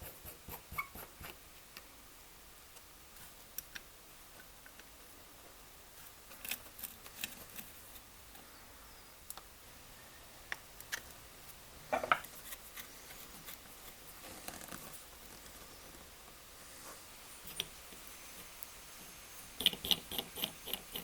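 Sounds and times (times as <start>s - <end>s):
soft scrape: 16.6s - 17.3s.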